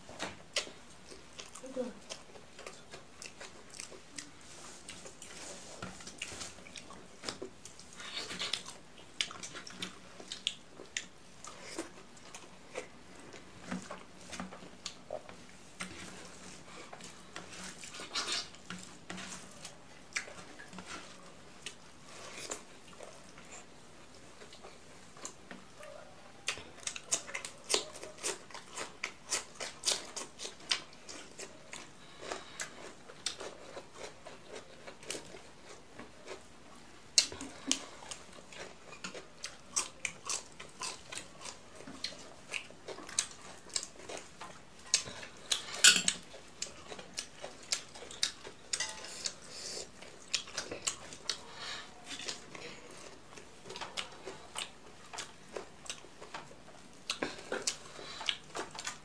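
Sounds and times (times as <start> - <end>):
chewing and mouth smacks: 0.2 - 25.7, 26.4 - 59.0.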